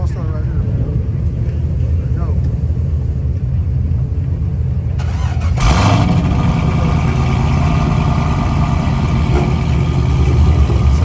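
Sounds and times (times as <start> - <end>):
car engine cold start idling: 5.0 - 11.0.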